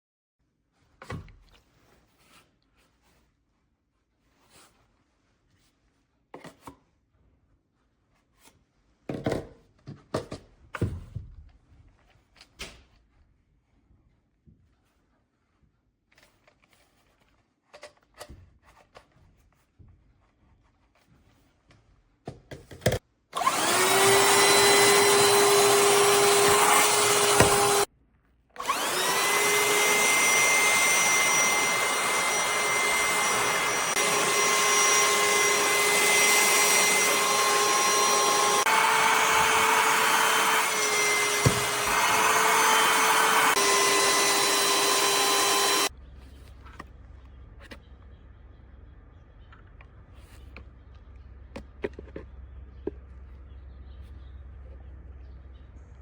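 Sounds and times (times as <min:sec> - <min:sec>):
handheld vacuum cleaner motor whine: 0:23.4 - 0:27.9, 0:28.6 - 0:45.9.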